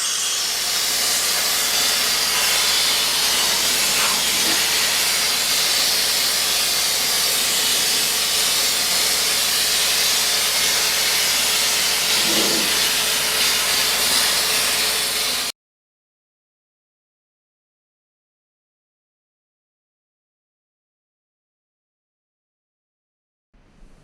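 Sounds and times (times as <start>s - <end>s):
compressed-air spray gun hissing: 0.0s - 15.5s.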